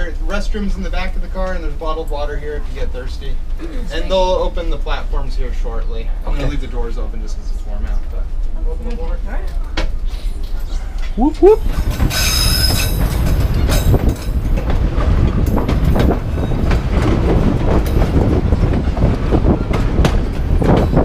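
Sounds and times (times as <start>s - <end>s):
train rumbling on rails: 0.0s - 21.0s
wheels clacking over track: 11.7s - 21.0s
metal wheel squeal: 12.1s - 13.1s.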